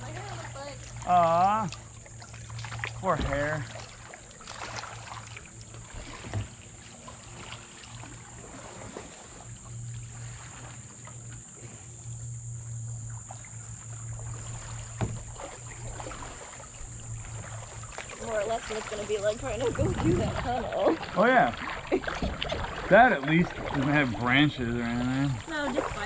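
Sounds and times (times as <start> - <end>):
crickets droning: 0.0 - 26.0
paddle splashes and drips: 0.0 - 26.0
knock on kayak hull: 15.0 - 15.3.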